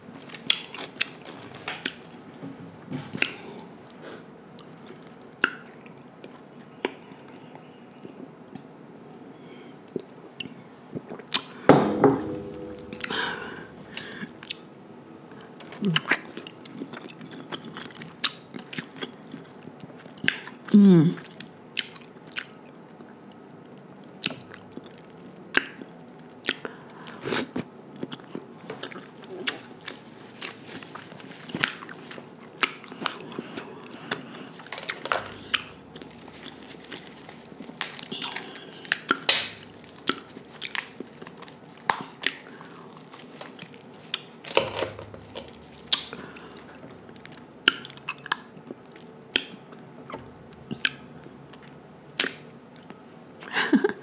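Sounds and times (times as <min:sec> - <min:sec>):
chewing and biting crab: 0:24.2 - 0:52.9.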